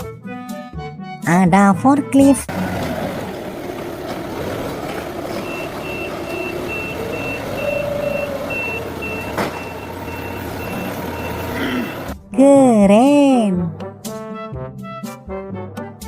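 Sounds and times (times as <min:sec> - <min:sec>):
rumbling engine: 0:02.5 - 0:12.3
reversing alarm beeping: 0:04.4 - 0:12.2.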